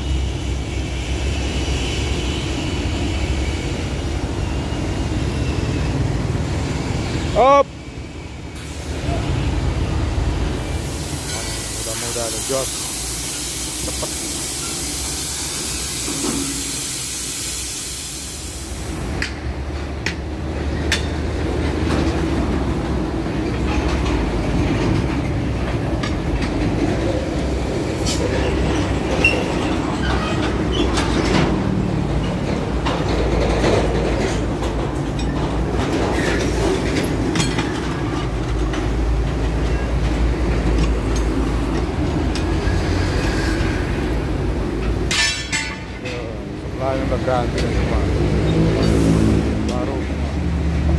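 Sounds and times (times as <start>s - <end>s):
compressed air hissing: 8.6s - 9.4s, 10.5s - 19.2s
metallic clanks and knocks: 44.8s - 46.3s.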